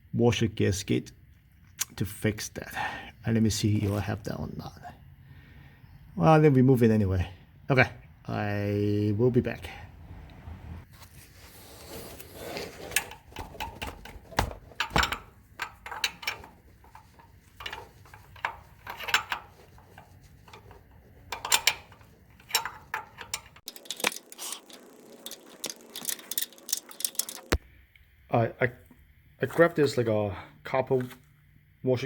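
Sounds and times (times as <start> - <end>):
metal parts clinking: 12.8 - 27.6.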